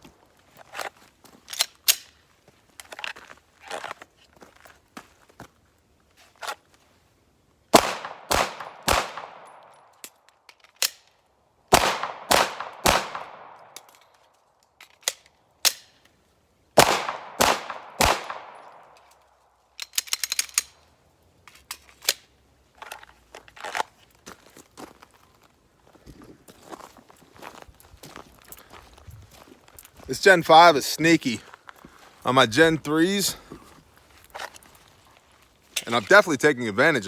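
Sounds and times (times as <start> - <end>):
pistol shots: 7.7 - 9.6, 11.7 - 13.8, 16.8 - 18.8
metallic handling clicks: 18.5 - 20.8.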